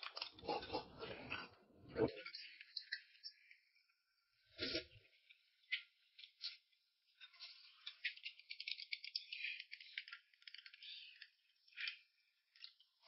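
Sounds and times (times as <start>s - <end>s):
food being chewed: 4.6s - 13.0s.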